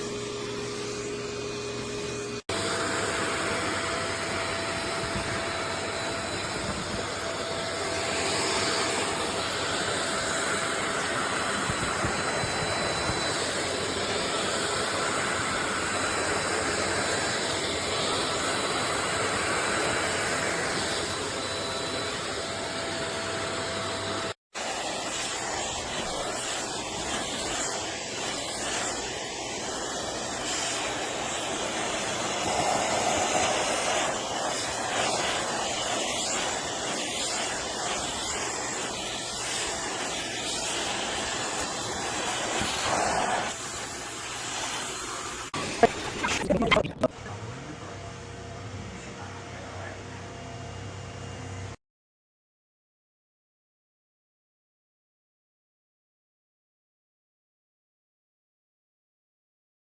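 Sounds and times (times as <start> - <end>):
vacuum air rush with whine: 24.6 - 47.0.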